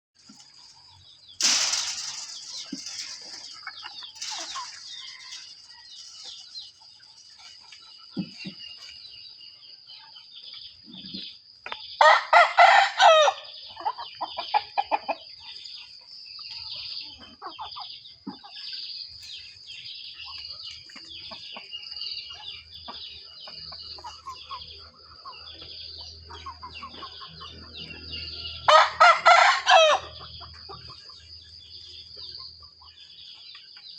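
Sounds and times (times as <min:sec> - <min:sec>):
chickens clucking: 0:00.2 - 0:33.9
rooster crowing: 0:12.0 - 0:13.5, 0:28.7 - 0:30.2.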